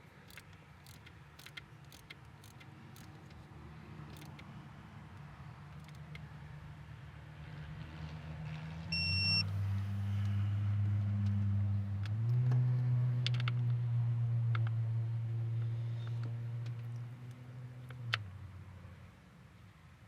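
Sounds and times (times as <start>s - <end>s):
ratchet clicks: 0.0s - 4.5s, 5.1s - 6.3s
short high electronic beep: 9.0s - 9.4s.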